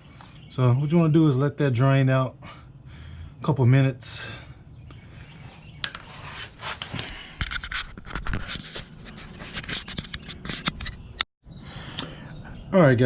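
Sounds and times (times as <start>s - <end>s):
scraping and rubbing: 5.1s - 11.2s.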